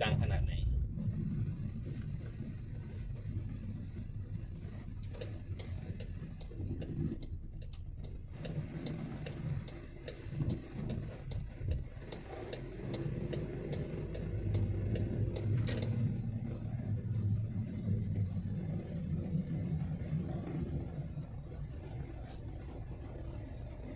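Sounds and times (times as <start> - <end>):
car engine and road noise: 0.0 - 23.9
sharp ticks: 5.0 - 16.2.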